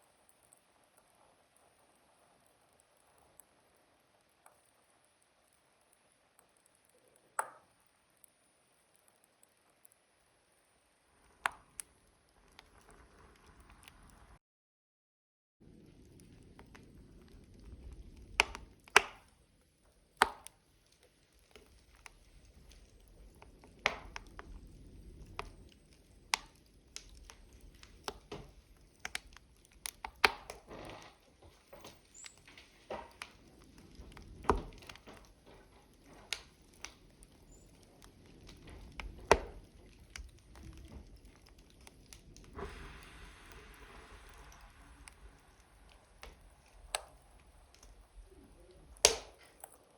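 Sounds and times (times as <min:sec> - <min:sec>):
burning logs crackling: 0:00.0 - 0:14.4, 0:15.6 - 0:49.9
low hiss of flames: 0:10.6 - 0:14.4, 0:15.6 - 0:49.9.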